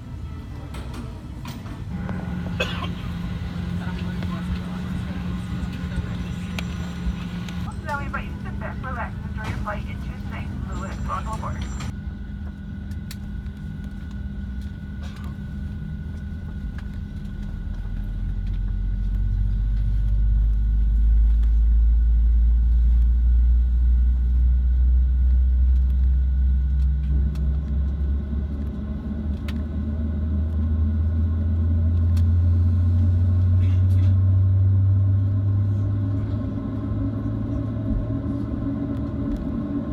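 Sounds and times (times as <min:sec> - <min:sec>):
airplane cabin hum: 0:00.0 - 0:39.9
deep engine rumble: 0:00.0 - 0:39.9.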